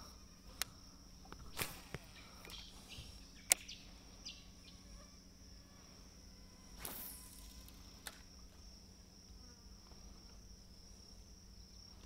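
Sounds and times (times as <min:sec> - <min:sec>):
high-pitched insect drone: 0:00.0 - 0:12.0
sharp click: 0:03.5 - 0:03.8.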